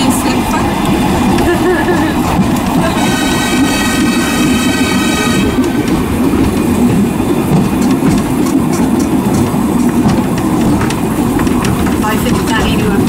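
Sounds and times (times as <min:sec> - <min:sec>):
train wheels rumbling on rail: 0:00.0 - 0:13.0
sharp clicks from the track: 0:07.5 - 0:13.0.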